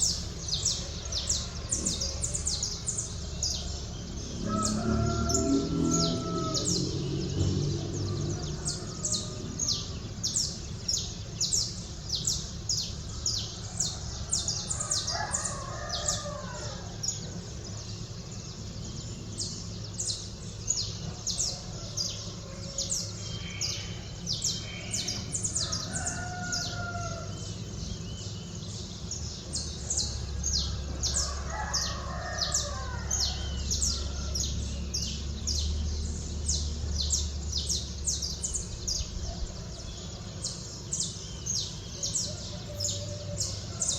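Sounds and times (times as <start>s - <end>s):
small birds chirping: 0.0s - 43.9s
rooster crowing: 0.5s - 10.4s, 13.3s - 17.4s, 21.4s - 27.7s, 29.9s - 35.1s, 37.1s - 43.9s.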